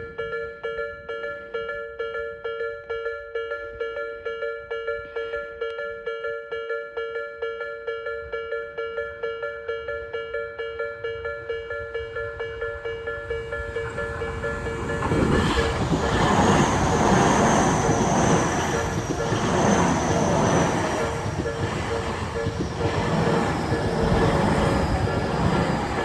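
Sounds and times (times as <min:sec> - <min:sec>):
crossing warning bell ringing: 0:08.2 - 0:26.0
electric train passing: 0:09.0 - 0:26.0.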